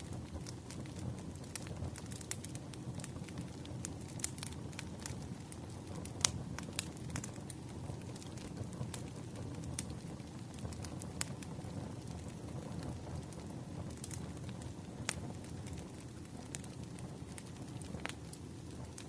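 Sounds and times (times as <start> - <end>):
campfire crackling: 0.0 - 19.0.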